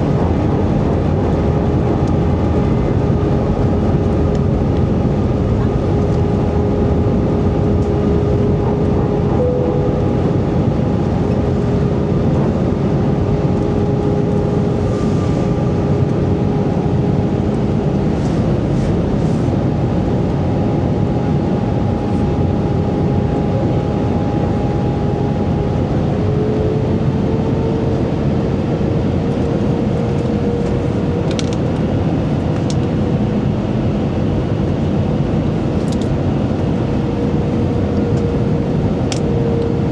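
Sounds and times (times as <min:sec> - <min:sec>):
jet engine rumble in cabin: 0:00.0 - 0:39.9
engine whining tones: 0:05.7 - 0:19.2.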